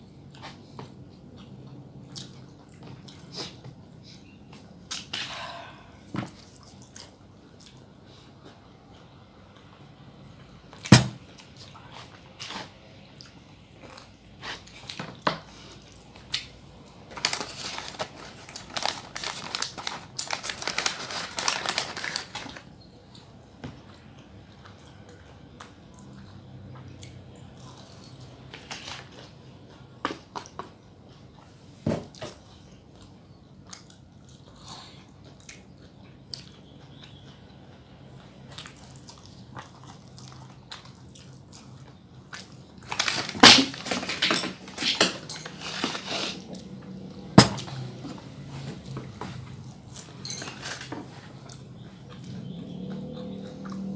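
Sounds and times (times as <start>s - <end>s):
crunching and chewing food: 0.0s - 53.9s.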